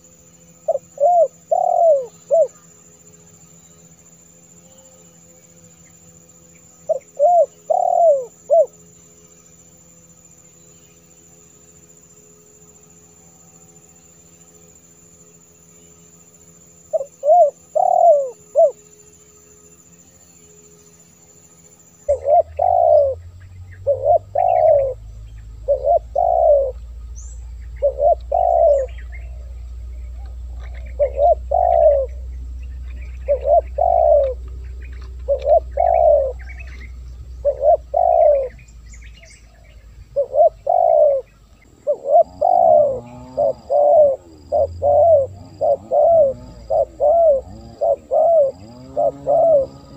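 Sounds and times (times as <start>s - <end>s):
dove cooing: 0.0s - 2.6s, 6.9s - 8.8s, 16.9s - 18.9s, 22.0s - 49.9s
low hum: 0.0s - 49.9s.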